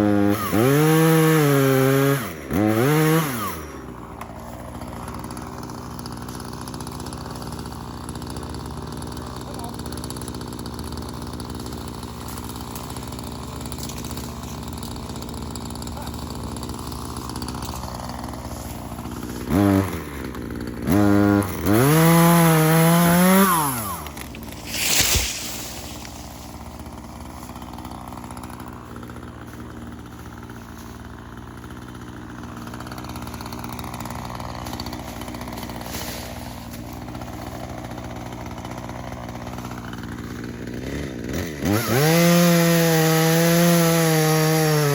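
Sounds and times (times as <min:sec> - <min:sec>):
chainsaw idling and revving: 0:00.0 - 0:44.9.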